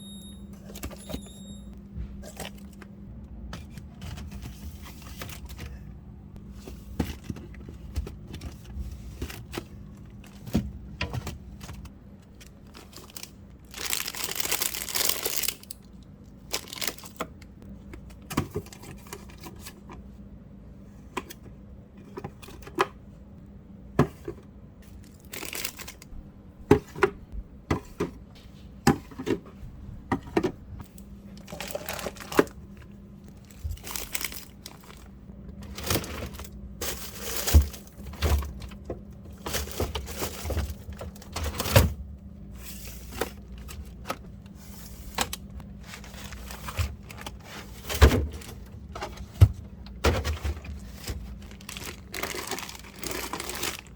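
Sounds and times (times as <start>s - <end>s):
steady low hum: 0.0s - 53.9s
containers clattering and knocking: 31.4s - 42.0s, 45.2s - 53.9s.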